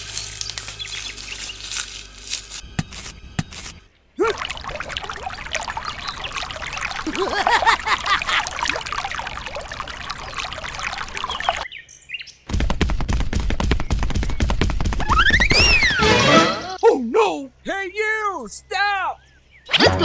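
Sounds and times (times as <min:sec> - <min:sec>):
birds chirping: 0:00.0 - 0:02.0, 0:04.2 - 0:11.8
liquid pouring and splashing: 0:04.2 - 0:11.7.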